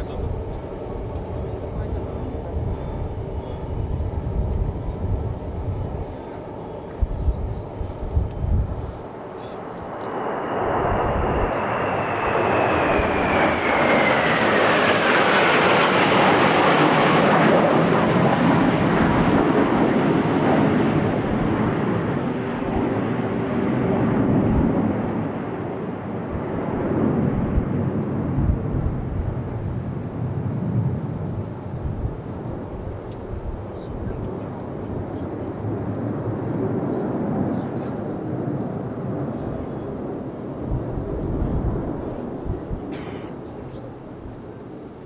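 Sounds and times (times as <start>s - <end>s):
jet roar flying past: 0.0s - 45.0s
jet whine sliding down: 3.9s - 20.0s.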